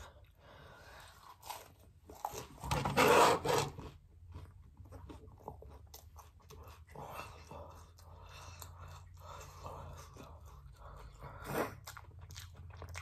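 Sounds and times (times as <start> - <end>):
chewing with small clicks: 5.0 - 13.0.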